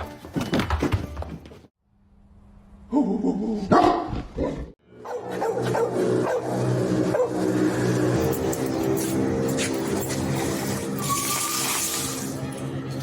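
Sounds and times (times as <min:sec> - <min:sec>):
dog barking and yipping: 0:05.0 - 0:07.6.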